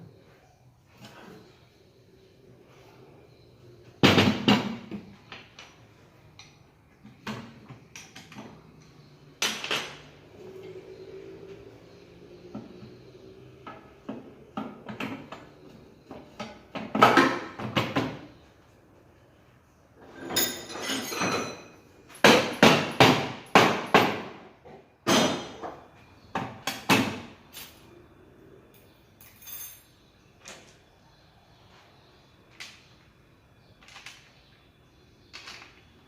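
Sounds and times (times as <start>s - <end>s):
metal tools clanking: 20.1s - 21.9s, 29.2s - 30.0s.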